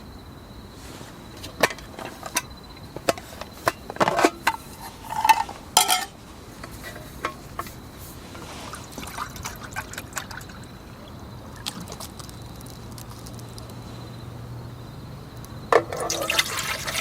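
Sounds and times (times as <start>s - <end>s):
cookware clinking and knocking: 3.6s - 6.2s
metallic ring: 5.0s - 6.2s.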